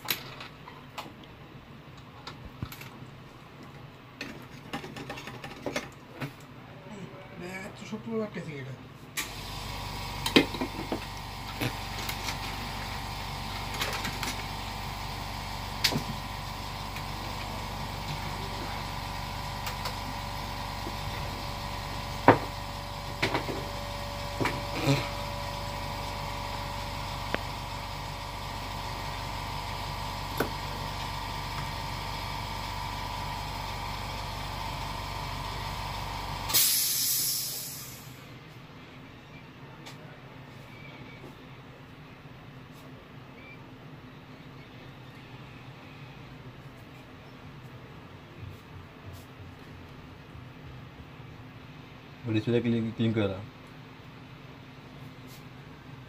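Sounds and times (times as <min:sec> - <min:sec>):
electric fan motor humming: 0:09.2 - 0:36.7
short rush of hiss: 0:36.5 - 0:38.2.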